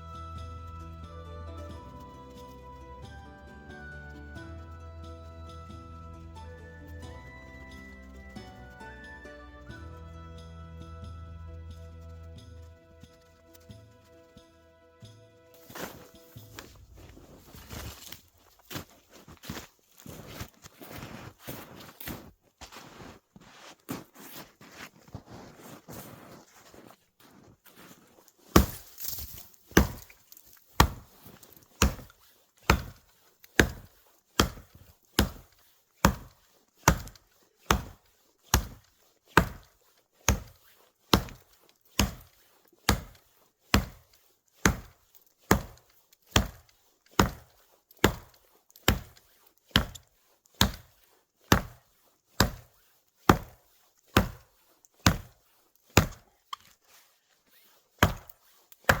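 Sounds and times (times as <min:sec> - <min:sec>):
wood being chopped: 0:28.5 - 0:56.3, 0:58.0 - 0:59.0.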